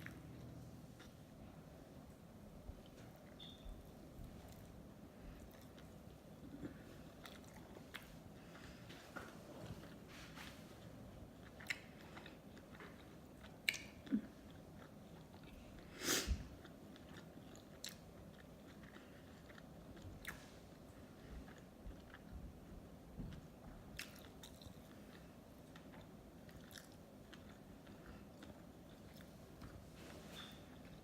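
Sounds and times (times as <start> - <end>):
mouth clicks and smacks: 13.6 - 14.2
wet chewing: 24.0 - 29.8.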